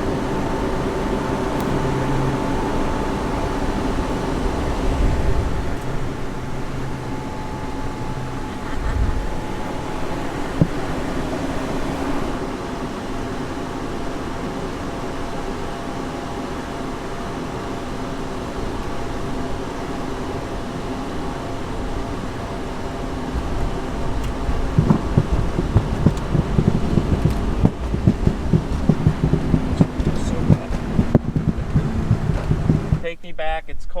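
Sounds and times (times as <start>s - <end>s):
low rumble: 0.0s - 12.5s, 21.3s - 33.2s
jet cabin engine drone: 0.0s - 34.0s
irregular knocks: 24.2s - 33.1s.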